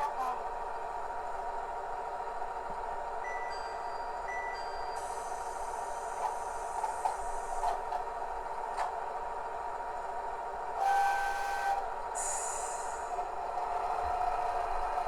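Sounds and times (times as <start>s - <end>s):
model railcar engine running: 5.2s - 15.0s
hiss of released air: 12.2s - 13.1s.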